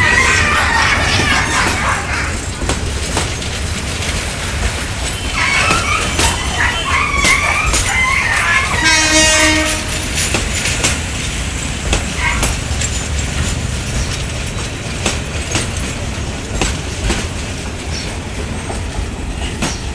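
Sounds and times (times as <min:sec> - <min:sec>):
train wheels clacking: 0:00.0 - 0:19.9
train horn blast: 0:05.1 - 0:10.2.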